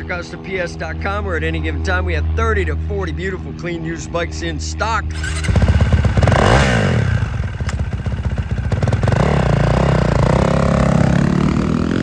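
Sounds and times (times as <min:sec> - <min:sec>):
motorcycle engine revving: 0:05.0 - 0:12.0.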